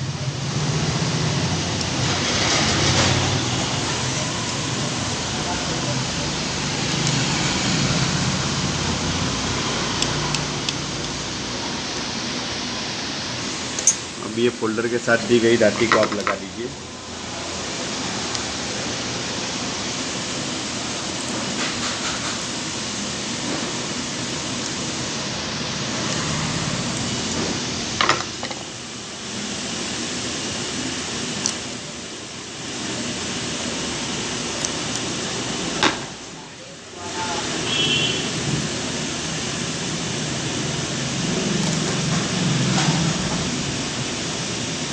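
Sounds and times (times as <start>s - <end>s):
fan-like hiss: 0.0s - 44.9s
small metal parts clicking: 13.8s - 14.1s.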